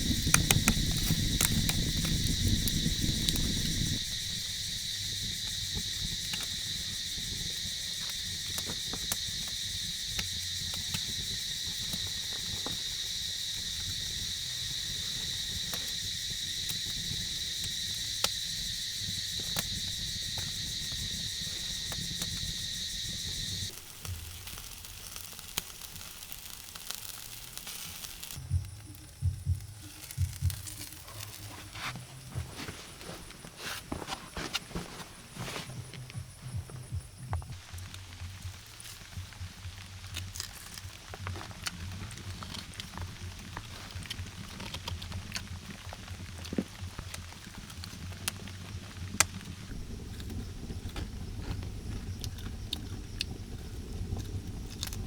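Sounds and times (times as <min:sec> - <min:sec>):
high-pitched insect chorus: 0:00.0 - 0:55.0
dull thumps: 0:29.3 - 0:37.6.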